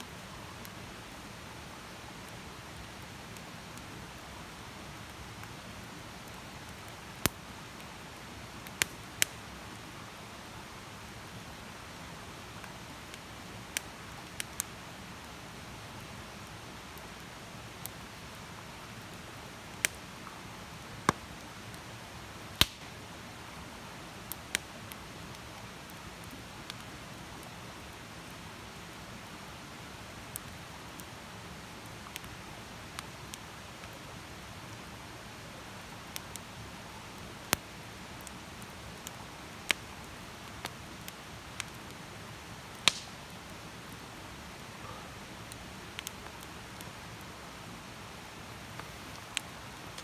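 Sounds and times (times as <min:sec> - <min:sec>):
campfire crackling and popping: 0:04.6 - 0:09.8, 0:12.5 - 0:23.1, 0:24.1 - 0:28.9, 0:30.2 - 0:35.0, 0:35.7 - 0:47.1, 0:47.9 - 0:50.0.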